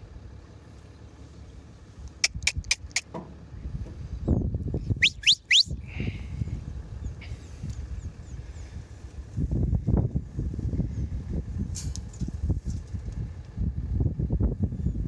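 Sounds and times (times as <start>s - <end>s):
wind rumble on microphone: 3.4s - 15.0s
small bird chirping: 5.0s - 5.8s.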